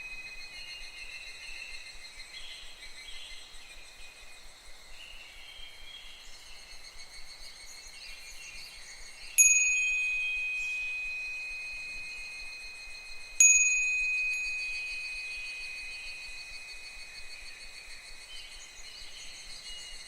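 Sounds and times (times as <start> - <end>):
cicadas chirping: 0.0 - 20.0
wind bell ringing: 9.4 - 17.8.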